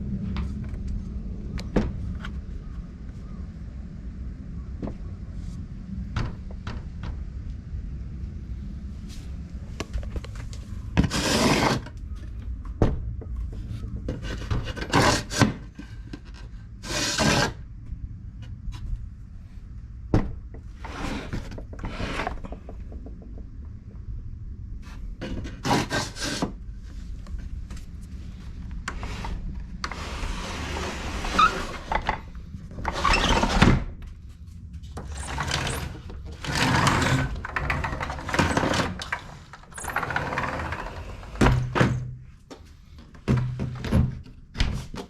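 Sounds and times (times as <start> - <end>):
wood scraping and rubbing: 11.0 - 11.9, 13.4 - 17.6, 20.7 - 23.4, 25.2 - 26.5, 28.9 - 33.7, 35.0 - 42.0.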